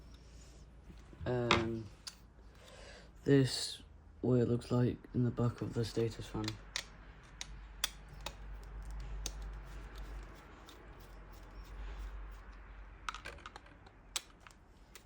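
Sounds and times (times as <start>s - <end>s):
low steady hum: 0.0s - 15.0s
plastic parts clicking and knocking: 13.0s - 14.6s.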